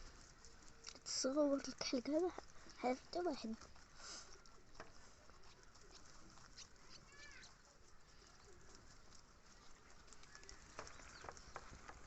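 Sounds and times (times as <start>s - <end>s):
faint ticks and rustles: 0.0s - 12.0s
faint bird chirp: 3.9s - 12.0s.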